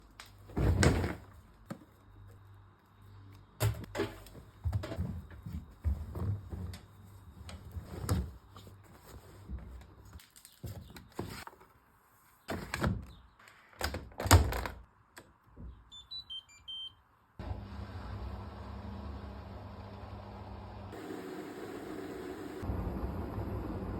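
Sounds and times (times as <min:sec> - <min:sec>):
washing machine humming: 0:17.4 - 0:23.9.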